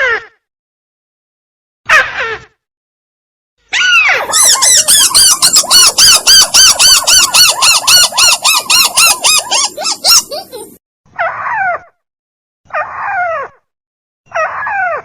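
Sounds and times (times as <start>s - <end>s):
recorded crake call: 4.1s - 10.8s.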